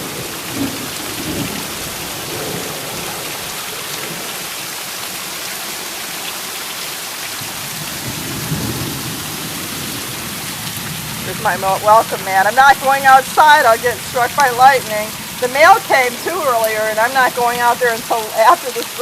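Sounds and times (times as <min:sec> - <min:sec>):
low thunder rumbles: 0:00.0 - 0:04.5, 0:07.4 - 0:18.4
heavy rain pouring: 0:00.0 - 0:19.0.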